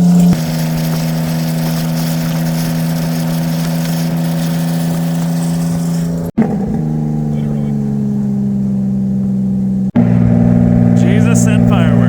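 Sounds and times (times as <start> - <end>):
road and wind hiss: 0.0 - 6.4
boat engine droning: 0.0 - 12.0.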